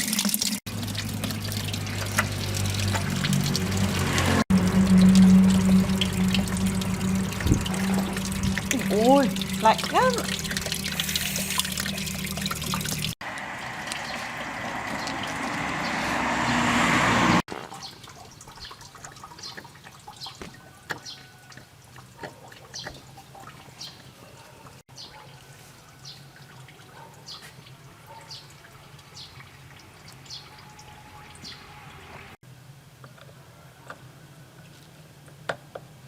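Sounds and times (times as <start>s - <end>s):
water drips and small splashes: 0.0s - 16.2s, 17.5s - 31.6s
water pouring: 0.0s - 23.9s.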